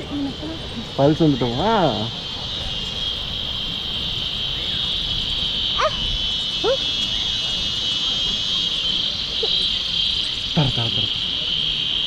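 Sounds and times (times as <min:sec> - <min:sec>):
insects droning: 0:00.0 - 0:12.0
rising yelping calls: 0:05.6 - 0:07.2.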